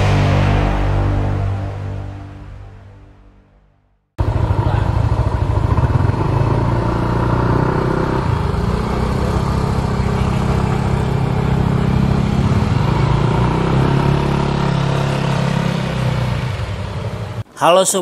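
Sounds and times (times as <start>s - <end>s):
small motorcycle engines running: 4.2s - 17.4s.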